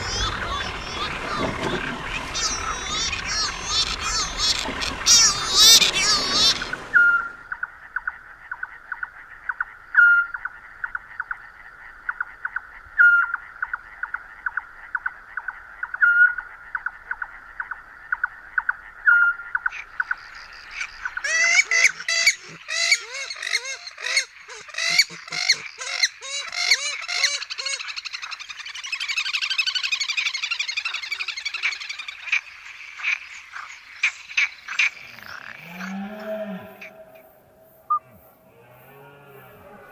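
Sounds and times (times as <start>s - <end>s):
flock of birds honking: 0.0s - 7.4s
pulsing chorus of calls: 0.0s - 7.4s, 35.8s - 39.9s.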